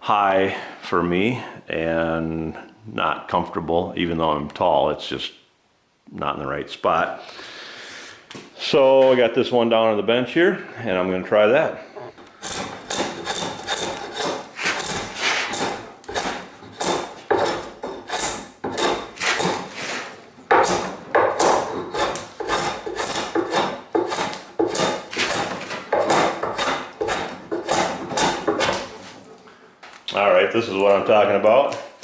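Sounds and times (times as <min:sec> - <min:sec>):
hand tool rasping wood: 0:12.0 - 0:29.3.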